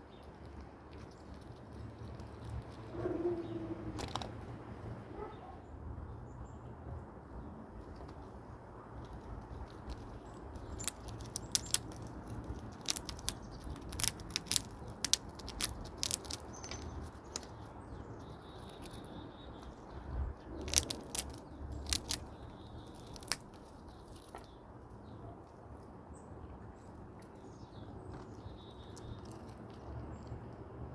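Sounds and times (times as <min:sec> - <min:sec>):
chipmunk cracking nuts: 0:00.0 - 0:04.6, 0:07.8 - 0:25.9, 0:26.8 - 0:30.6
wind rumbling on microphone: 0:06.1 - 0:24.6.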